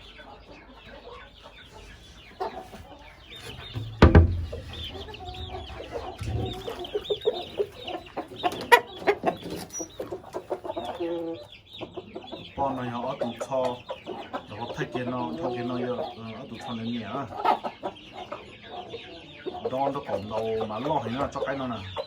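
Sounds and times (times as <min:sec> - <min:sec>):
chickens clucking: 0:00.0 - 0:22.0
loud thump: 0:03.4 - 0:06.7.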